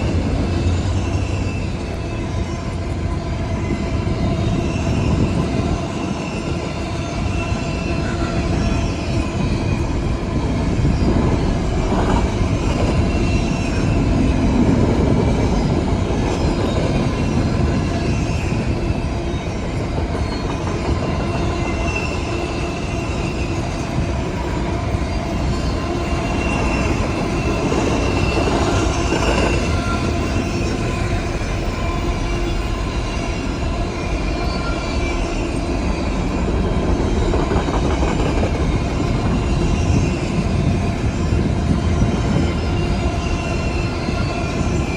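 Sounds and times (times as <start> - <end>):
train wheels rumbling on rail: 0.0 - 44.9
high wheel squeal: 25.0 - 36.4.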